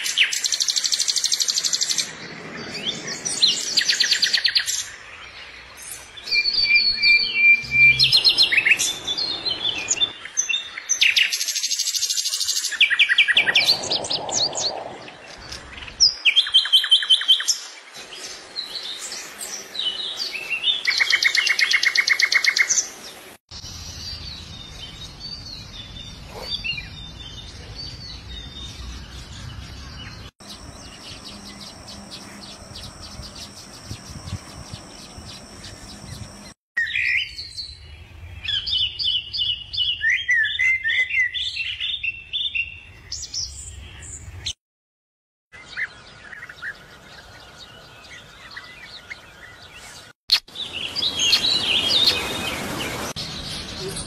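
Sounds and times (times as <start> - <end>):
birds chirping and calling: 0.0 - 17.6, 23.9 - 44.5.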